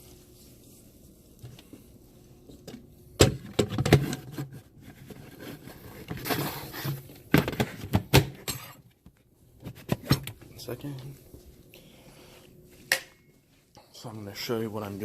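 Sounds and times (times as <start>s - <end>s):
rustling scrape: 4.2s - 7.1s.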